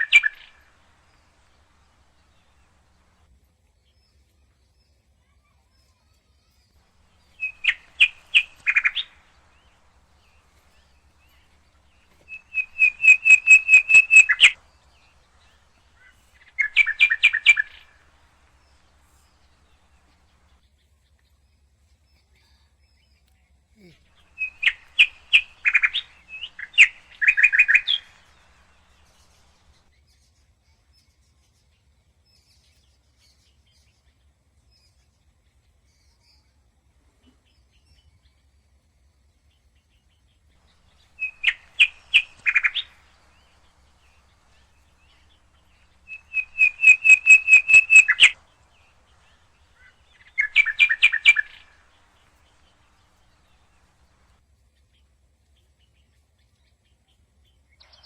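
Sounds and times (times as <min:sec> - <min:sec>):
parakeet shrill calls: 0:07.2 - 0:09.9, 0:12.3 - 0:15.1, 0:16.0 - 0:18.1, 0:24.2 - 0:29.4, 0:40.7 - 0:54.0.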